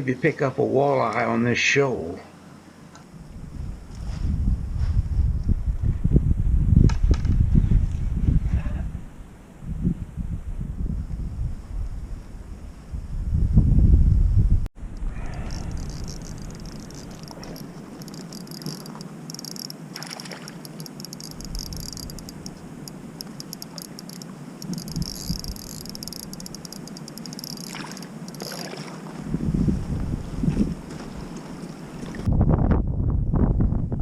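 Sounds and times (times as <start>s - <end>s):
low wind rumble: 3.1s - 28.4s, 29.2s - 34.0s
insects chirping: 14.8s - 28.9s
frogs calling: 15.0s - 28.8s.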